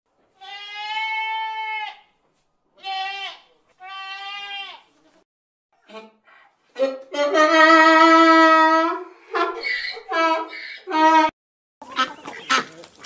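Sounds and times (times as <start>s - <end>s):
goat bleating: 0.3s - 2.1s, 2.8s - 4.9s.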